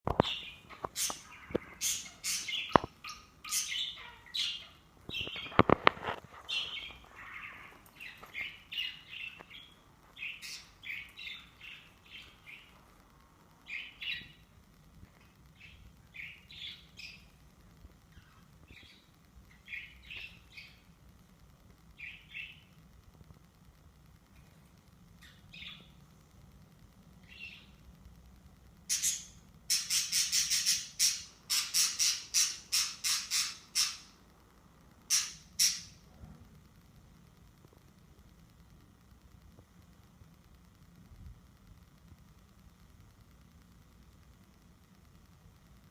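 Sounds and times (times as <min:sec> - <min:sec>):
small birds chirping and squawking: 0:00.1 - 0:12.8, 0:13.6 - 0:14.6, 0:15.2 - 0:17.4, 0:18.0 - 0:20.9, 0:22.0 - 0:22.8, 0:25.2 - 0:26.0, 0:27.2 - 0:27.8, 0:28.9 - 0:34.2, 0:35.0 - 0:36.1.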